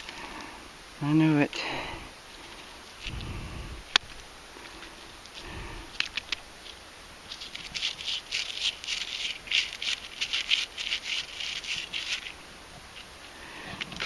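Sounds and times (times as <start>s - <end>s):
dirt and glass fragments rattling: 6.1s - 12.4s.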